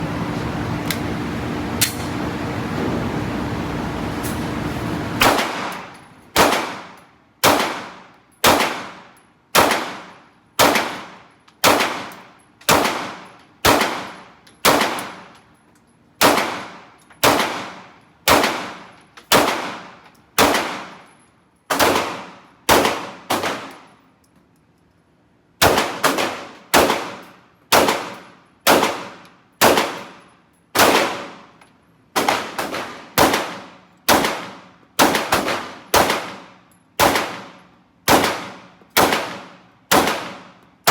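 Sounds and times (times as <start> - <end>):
gunshots with echo: 5.2 - 9.0.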